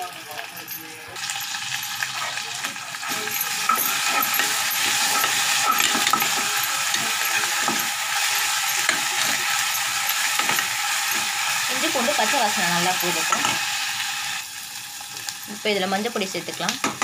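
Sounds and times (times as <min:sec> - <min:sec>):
onions sizzling in hot oil: 0:00.0 - 0:17.0
metal spoon scraping a pot: 0:01.2 - 0:13.8.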